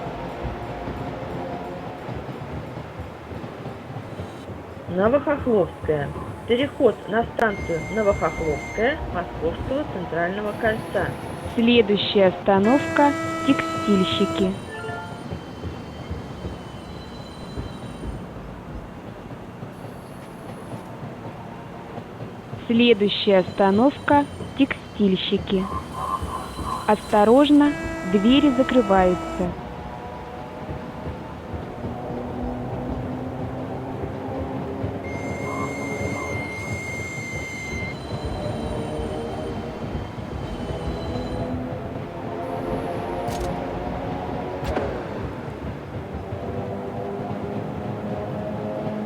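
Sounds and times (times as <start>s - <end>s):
train interior rumble and hiss: 0.0s - 49.0s
wheels squealing on rails: 0.0s - 49.0s
faint high whistle: 7.4s - 9.0s, 12.7s - 18.2s, 25.6s - 29.5s, 35.0s - 41.6s.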